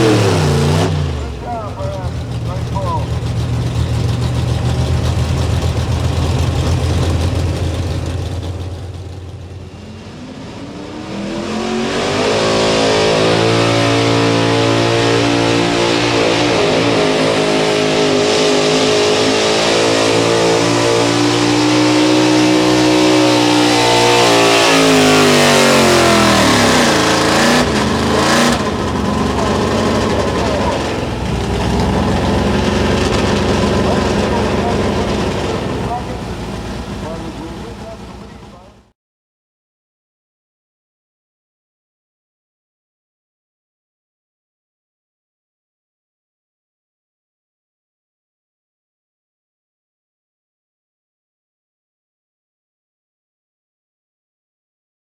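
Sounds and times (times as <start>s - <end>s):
truck engine revving: 0.0s - 38.9s.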